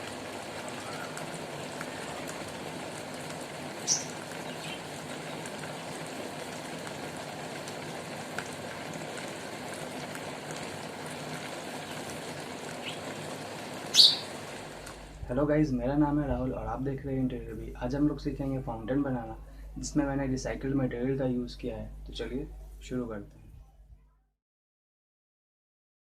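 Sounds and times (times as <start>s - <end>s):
water fountain trickling: 0.0s - 16.0s.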